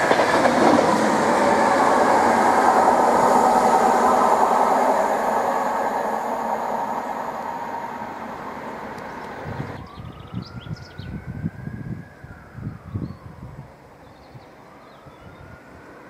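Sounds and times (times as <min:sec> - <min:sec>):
wind gusts on microphone: 0:00.0 - 0:15.8
electric train passing at speed: 0:00.0 - 0:16.0
faint rising whine: 0:00.7 - 0:10.1.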